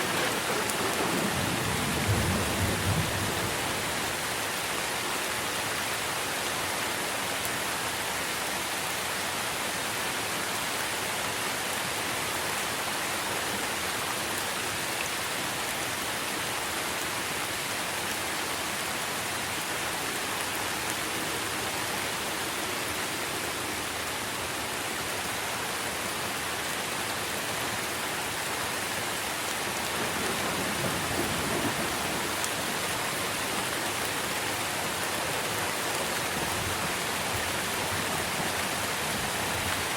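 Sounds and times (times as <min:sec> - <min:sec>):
rain on foliage: 0:00.0 - 0:39.9.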